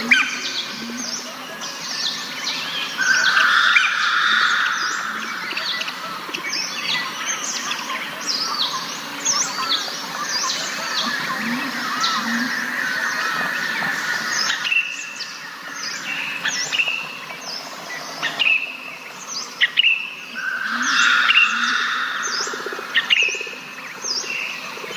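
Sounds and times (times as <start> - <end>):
wild birds chirping and calling: 0.0 - 24.9.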